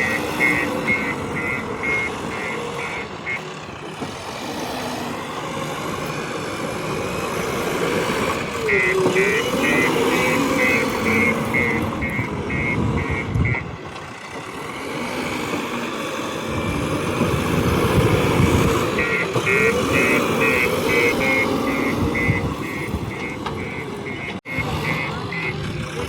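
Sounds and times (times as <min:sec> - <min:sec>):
rapid electronic beeping: 0:00.0 - 0:03.5, 0:08.7 - 0:13.7, 0:18.7 - 0:25.9
diesel engine running: 0:00.0 - 0:26.0.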